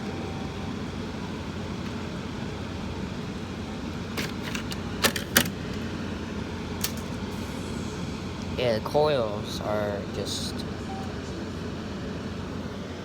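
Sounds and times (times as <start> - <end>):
air conditioner fan running: 0.0 - 13.0
clicks and rattles of filter: 4.2 - 5.6.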